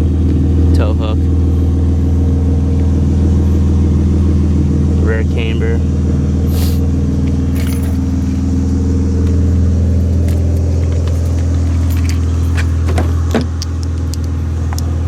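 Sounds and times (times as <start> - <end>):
car engine idling: 0.0 - 15.0
keys clicking and jingling: 7.4 - 8.2, 9.9 - 15.0.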